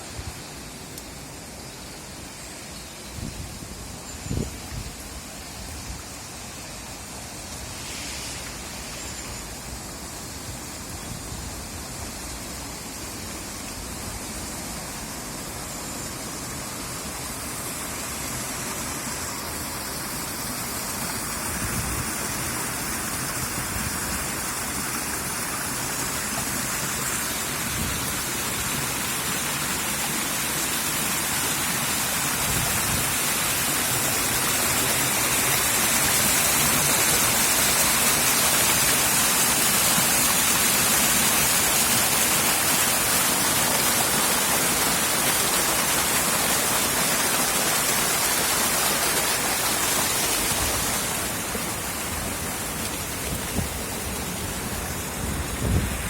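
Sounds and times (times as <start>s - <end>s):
floodwater rushing: 16.4s - 56.0s.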